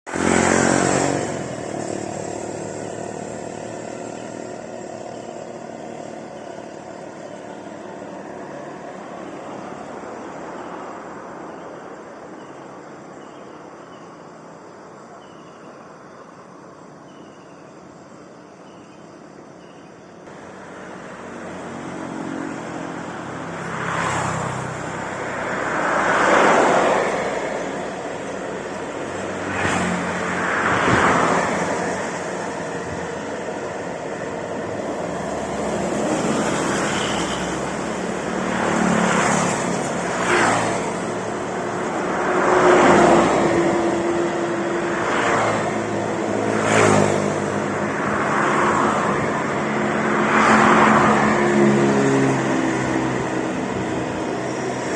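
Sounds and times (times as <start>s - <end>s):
vehicles passing by: 0.0s - 17.9s, 19.5s - 54.9s
low traffic hum: 0.0s - 54.9s.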